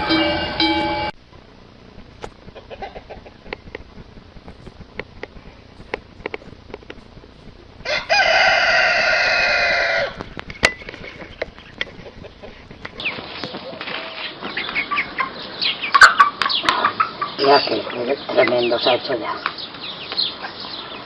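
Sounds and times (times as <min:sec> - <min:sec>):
chicken clucks and chirps: 0:02.4 - 0:04.8, 0:07.9 - 0:21.0
rooster crowing: 0:07.8 - 0:10.2.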